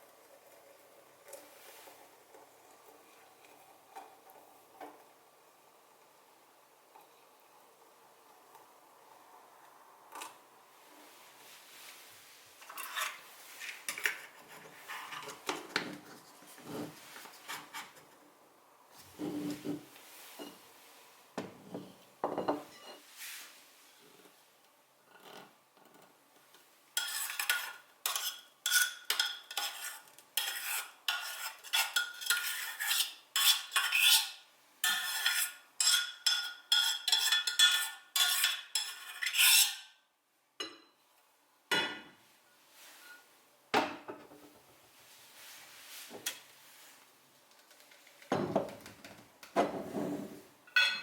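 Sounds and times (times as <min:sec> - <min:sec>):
spoon scraping cookware: 0:12.6 - 0:15.5, 0:19.1 - 0:20.6, 0:27.0 - 0:39.9
knocks and clinks: 0:50.7 - 0:51.0.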